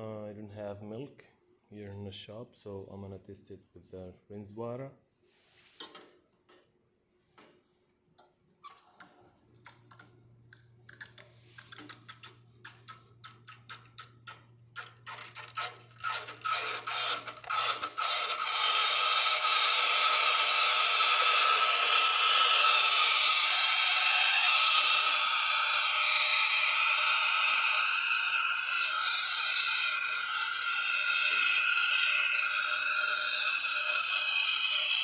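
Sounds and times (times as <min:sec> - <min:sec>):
steam wand sputtering and hissing: 0:16.7 - 0:35.0.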